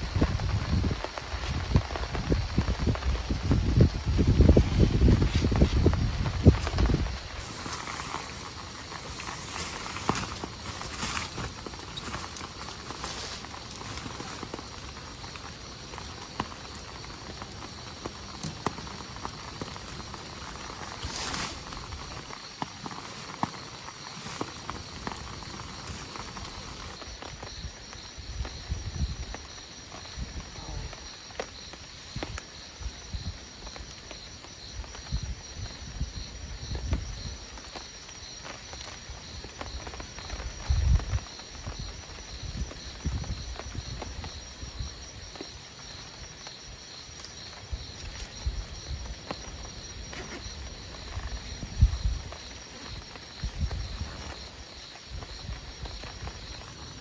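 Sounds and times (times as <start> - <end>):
wind gusts on microphone: 0.0 - 31.2, 34.6 - 37.6, 39.0 - 57.0
crickets chirring: 0.0 - 57.0.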